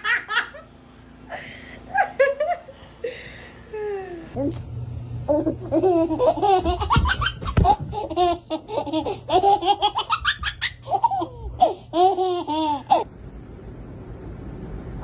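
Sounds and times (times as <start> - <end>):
baby laughing: 5.3 - 13.1.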